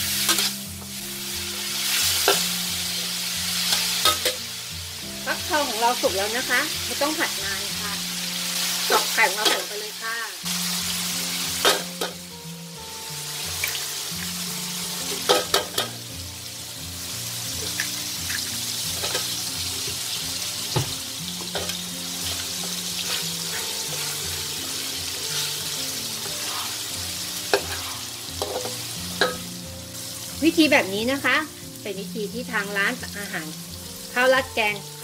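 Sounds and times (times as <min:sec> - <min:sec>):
food sizzling in oil: 0:00.0 - 0:35.0
soft background music: 0:00.0 - 0:35.0
metal spatula tapping wok: 0:03.7 - 0:04.4, 0:27.5 - 0:29.5.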